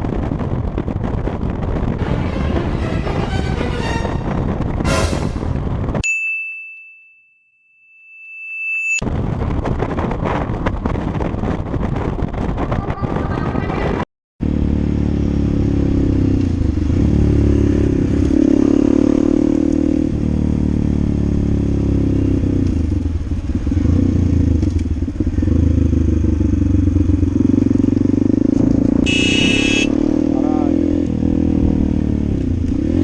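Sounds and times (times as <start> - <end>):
motorcycle engine revving: 14.4 - 33.0.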